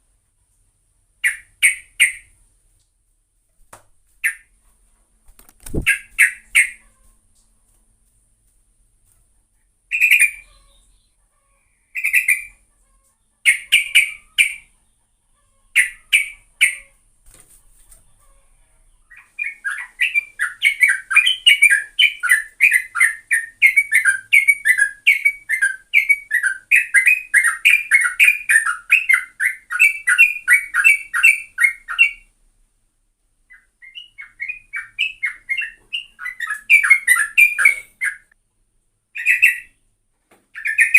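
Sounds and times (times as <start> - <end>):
bird rapid chattering song: 1.2 - 2.4, 5.6 - 6.8, 9.9 - 11.2, 12.0 - 12.6, 13.4 - 14.7, 15.8 - 17.0, 19.1 - 32.3, 33.5 - 38.3, 39.2 - 39.8, 40.6 - 40.9
bird chirping notes: 9.9 - 11.2, 19.0 - 32.3, 33.5 - 38.4, 39.2 - 39.8, 40.6 - 40.9.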